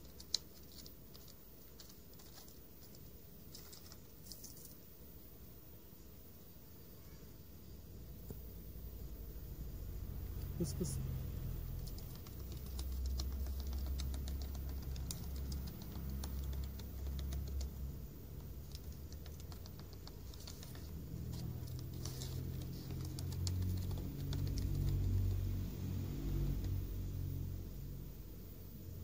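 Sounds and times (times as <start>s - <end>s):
kitten claws scratching on bark: 0.0s - 4.8s, 11.7s - 25.6s
steady low rumble: 7.9s - 29.0s.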